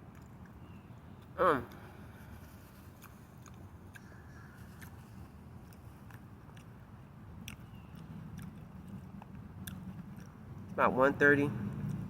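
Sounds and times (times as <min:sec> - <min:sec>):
person chewing food: 0:00.0 - 0:10.8.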